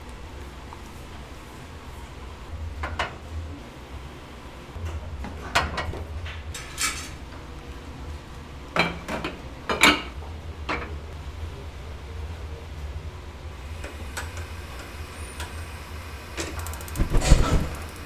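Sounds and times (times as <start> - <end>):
dishes and utensils clattering: 5.3 - 7.4, 8.8 - 10.9
steady low hum: 16.9 - 18.0.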